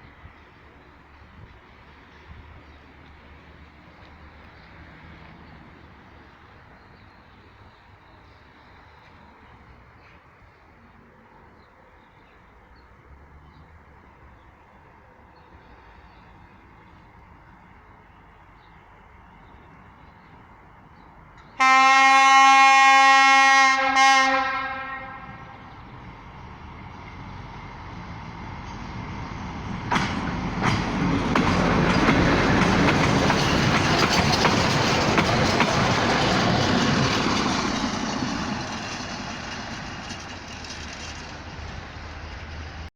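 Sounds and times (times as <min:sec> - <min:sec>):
rail machine rumbling past: 0:00.0 - 0:42.9
machine horn blasts: 0:21.6 - 0:25.4
wheels clacking on rails: 0:25.7 - 0:42.9.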